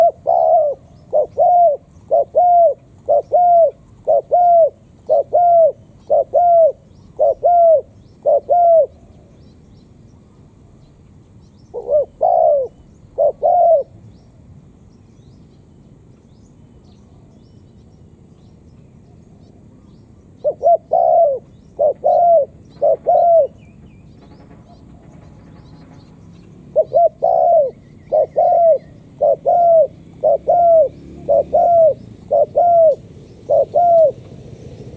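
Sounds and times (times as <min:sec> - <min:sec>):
dove cooing: 0:00.0 - 0:09.2, 0:11.7 - 0:14.0, 0:20.4 - 0:23.7, 0:26.6 - 0:34.9.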